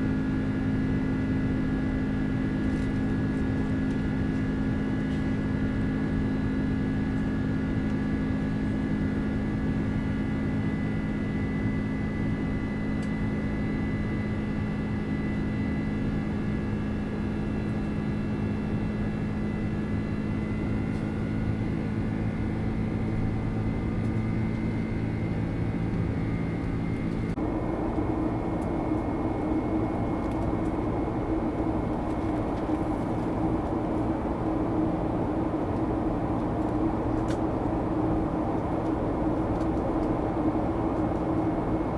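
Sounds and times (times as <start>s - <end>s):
airliner engines droning: 0.0s - 41.9s
lower hum: 22.8s - 41.9s.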